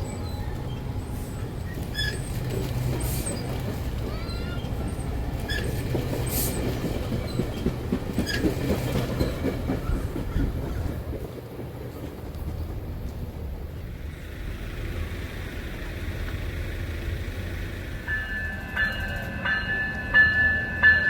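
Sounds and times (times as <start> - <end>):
wheel squeals: 0.0 - 10.8
train wheels clickety-clack: 0.7 - 21.0.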